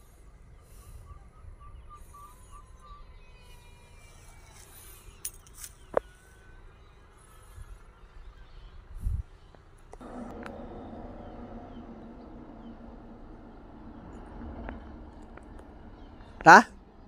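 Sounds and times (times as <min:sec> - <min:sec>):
bird chirping: 0:00.6 - 0:17.0
low rumble: 0:09.8 - 0:17.0.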